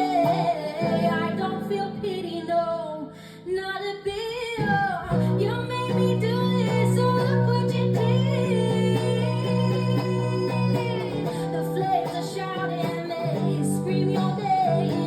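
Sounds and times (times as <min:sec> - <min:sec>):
woman singing wordlessly: 0:00.0 - 0:15.0
low guitar chords: 0:04.6 - 0:15.0.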